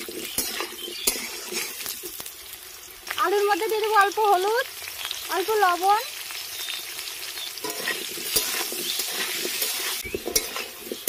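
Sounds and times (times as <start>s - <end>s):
metal spatula scraping pan: 0.0s - 2.0s, 7.6s - 11.0s
potatoes sizzling in oil: 0.0s - 11.0s.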